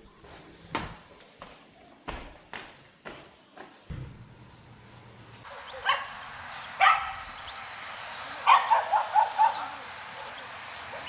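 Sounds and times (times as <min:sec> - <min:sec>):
dog barking: 0:05.4 - 0:07.3, 0:08.4 - 0:11.0.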